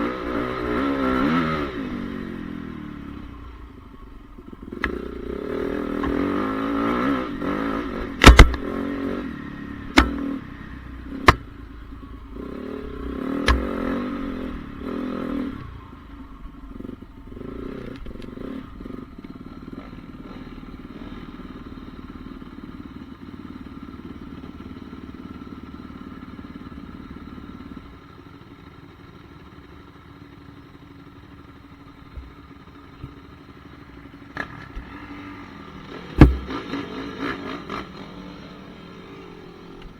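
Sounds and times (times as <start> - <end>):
motocross bike engine revving: 0.0 - 3.3, 4.6 - 15.9, 34.3 - 39.9
sharp loud engine knocks: 8.0 - 8.8, 9.9 - 10.4, 13.0 - 14.0, 36.0 - 37.8.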